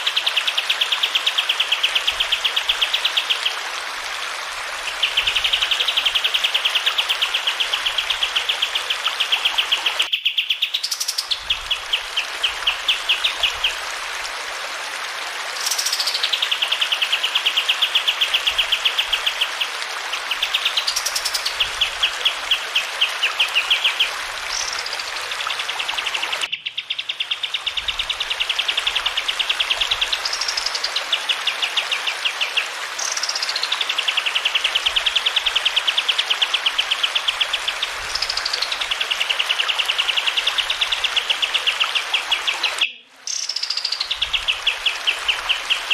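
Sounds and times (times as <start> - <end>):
flowing water rushing: 0.0 - 10.1, 10.8 - 45.9
songbird trilling: 26.4 - 28.0, 42.4 - 44.8.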